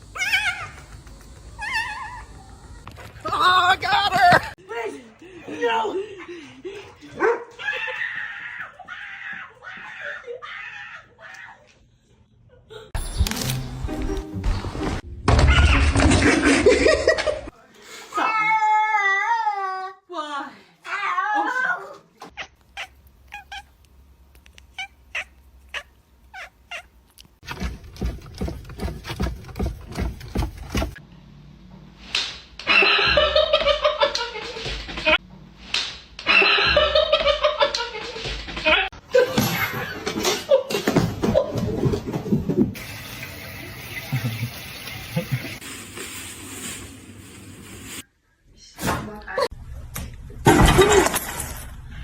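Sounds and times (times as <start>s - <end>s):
dog barking: 7.2s - 7.6s
cat meowing: 22.4s - 23.7s.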